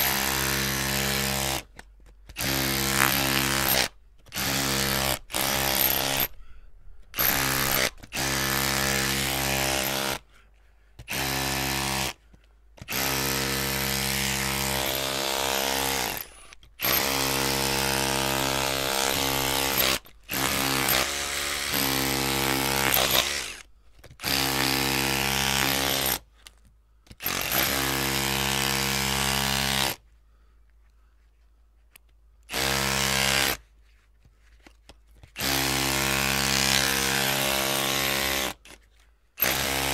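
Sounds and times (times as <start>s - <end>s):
electric drill running: 4.4s - 6.3s, 7.2s - 10.2s, 12.9s - 23.6s.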